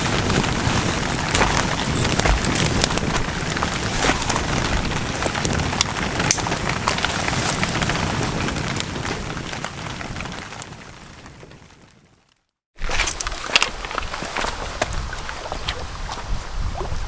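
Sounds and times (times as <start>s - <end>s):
steady rain falling: 0.0s - 12.3s.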